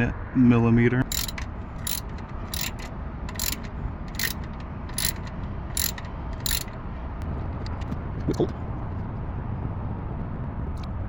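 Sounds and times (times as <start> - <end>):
socket ratchet clicking: 1.0 - 6.8.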